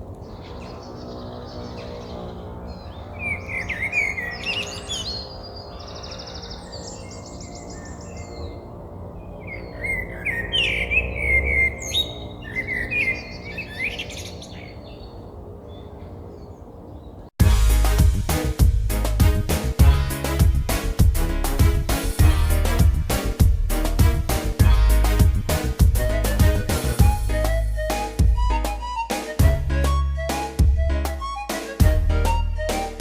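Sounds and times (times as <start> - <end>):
songbird singing with trills: 0.2 - 17.2.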